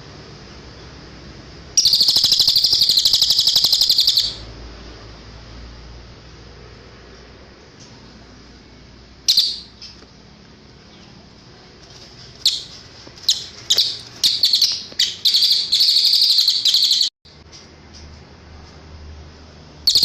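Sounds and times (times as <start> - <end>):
bird calls and high trill: 1.8 - 4.5, 9.2 - 10.0, 12.3 - 17.2.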